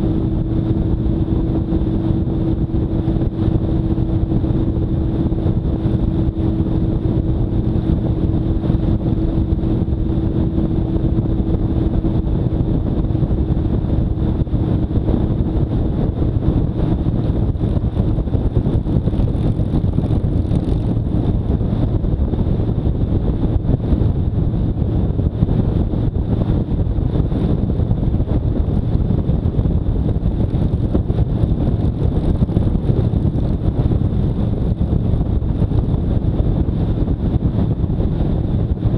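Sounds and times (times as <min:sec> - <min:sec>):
motorcycle engine cruising: 0:00.0 - 0:38.9
steady hum: 0:00.0 - 0:38.9
wind rush on microphone: 0:00.0 - 0:38.9.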